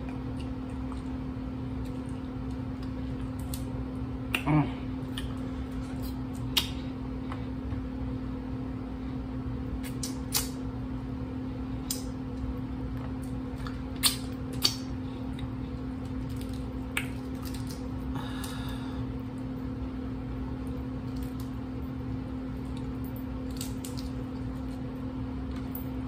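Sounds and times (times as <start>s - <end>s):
steady low hum: 0.0s - 26.0s
mouth eating sounds: 4.3s - 6.8s.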